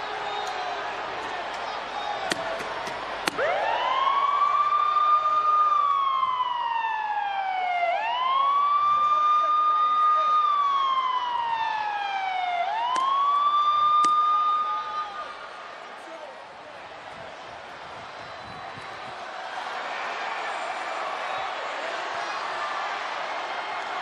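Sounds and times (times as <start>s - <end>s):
ambulance siren wailing: 3.3s - 15.2s.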